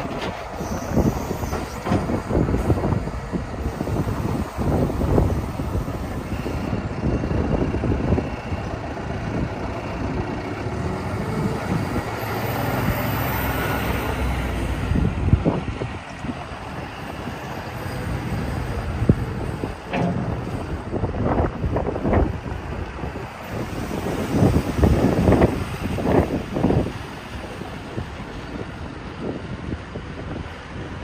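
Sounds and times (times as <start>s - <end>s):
diesel engine running: 0.0s - 30.7s
short clunks: 1.4s - 2.7s, 19.8s - 21.4s.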